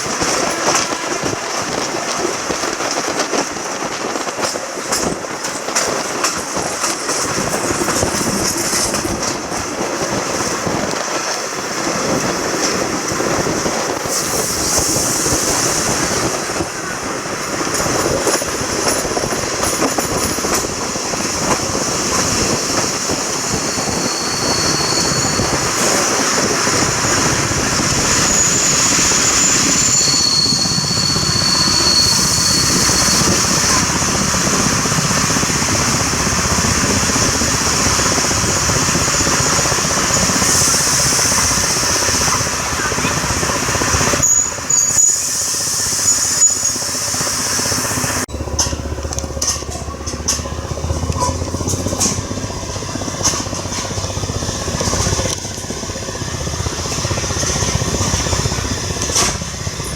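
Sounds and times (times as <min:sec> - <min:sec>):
train rumbling on track: 0:00.0 - 0:59.9
high wheel squeals: 0:22.0 - 0:33.9, 0:38.6 - 0:48.8.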